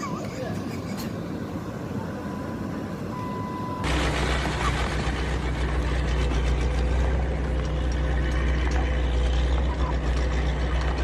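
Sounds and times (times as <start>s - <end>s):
vehicle engine humming: 0.1s - 11.0s.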